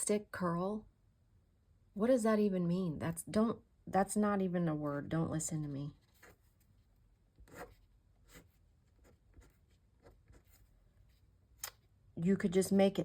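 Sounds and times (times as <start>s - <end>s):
pen scratching on paper: 7.4s - 11.2s.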